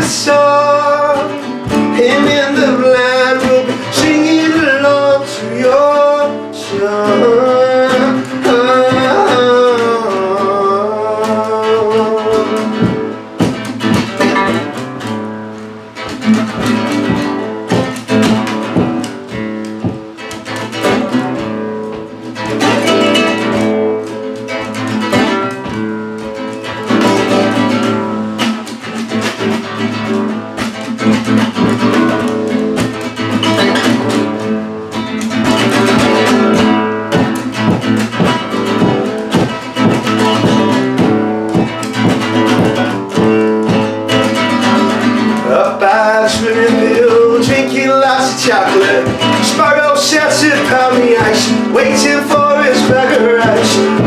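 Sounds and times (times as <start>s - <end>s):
person singing: 0.0s - 14.4s, 43.7s - 54.0s
acoustic guitar plucked and strummed: 0.0s - 54.0s.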